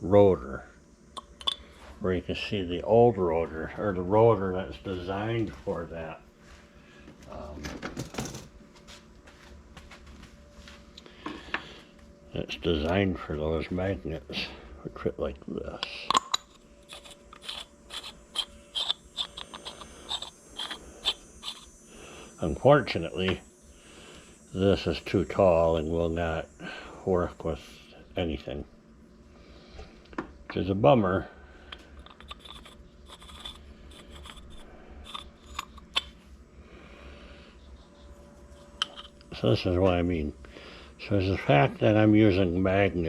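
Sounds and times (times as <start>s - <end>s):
small metal parts clicking: 15.8s - 21.7s, 31.7s - 36.1s
metal scraping: 15.9s - 21.7s.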